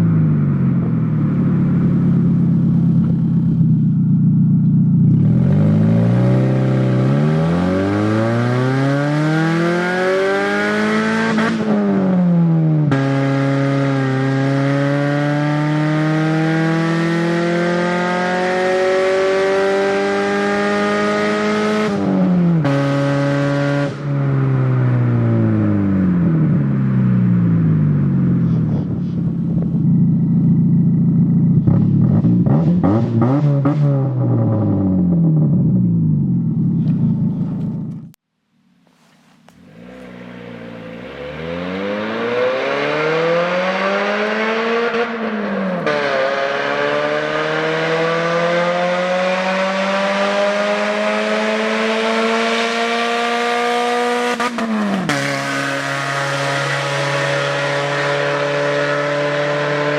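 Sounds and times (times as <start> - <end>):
car engine accelerating and idling: 0.0 - 38.2, 39.0 - 59.9.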